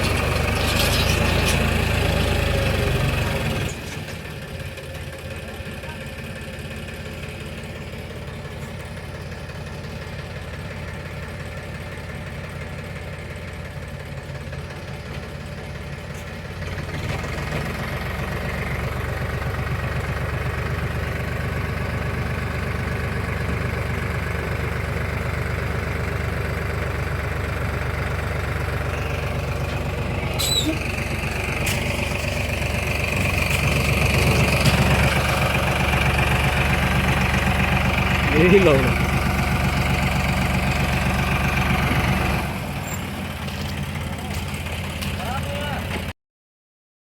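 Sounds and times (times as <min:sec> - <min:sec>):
tractor diesel engine running: 0:00.0 - 0:46.1
brief high squeal: 0:30.4 - 0:30.9.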